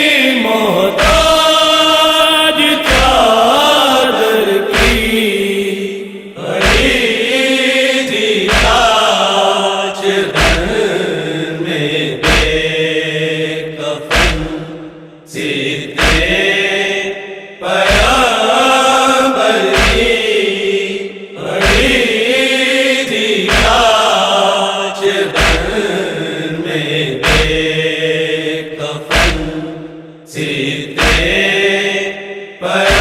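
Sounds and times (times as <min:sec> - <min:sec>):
men chanting a lament: 0:00.0 - 0:33.0
deep thumps: 0:10.4 - 0:10.8, 0:12.2 - 0:12.7, 0:14.1 - 0:14.9, 0:16.0 - 0:16.4, 0:25.4 - 0:25.8, 0:27.2 - 0:27.7, 0:29.1 - 0:29.6, 0:31.0 - 0:31.4.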